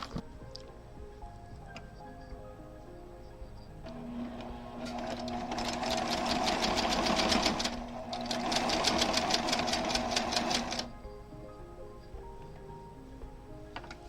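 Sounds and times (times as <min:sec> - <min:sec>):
sewing machine stitching: 0:03.8 - 0:10.9.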